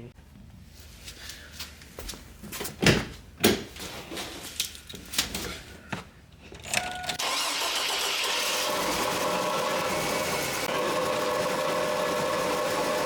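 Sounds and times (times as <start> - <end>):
car engine starting and running: 7.2 - 13.0.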